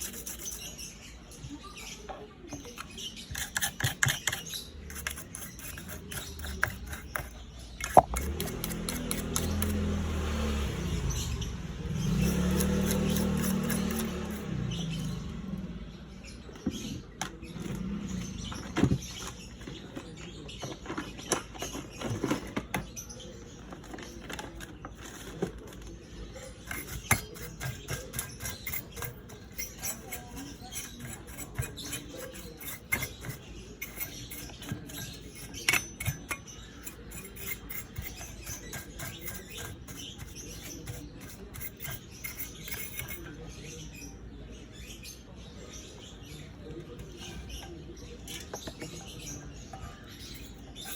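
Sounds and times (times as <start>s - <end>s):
small tools clicking and tapping: 2.5s - 9.8s, 26.6s - 43.2s.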